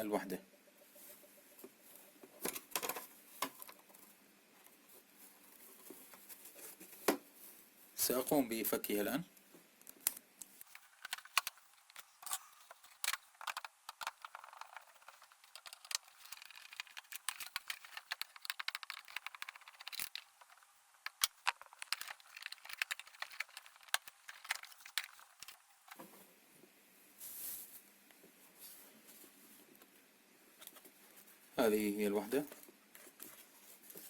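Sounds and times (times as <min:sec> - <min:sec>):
plastic clicks and rattles: 0:09.8 - 0:26.0.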